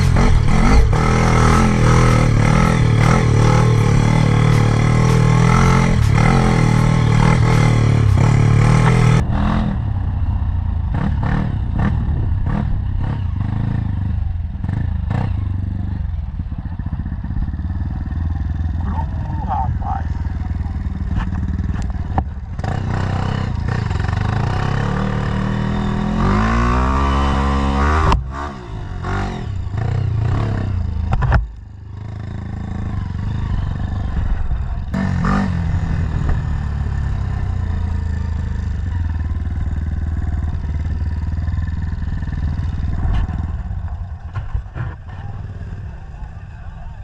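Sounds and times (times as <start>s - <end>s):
dirt bike engine revving: 0.0s - 10.1s, 17.3s - 31.3s.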